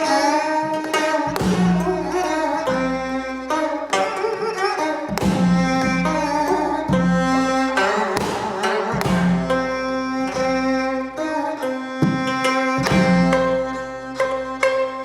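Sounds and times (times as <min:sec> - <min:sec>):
bowed string long notes: 0:00.0 - 0:15.0
plucked zither melody: 0:00.0 - 0:15.0
drum strokes: 0:01.3 - 0:03.0, 0:05.1 - 0:10.7, 0:12.0 - 0:13.6.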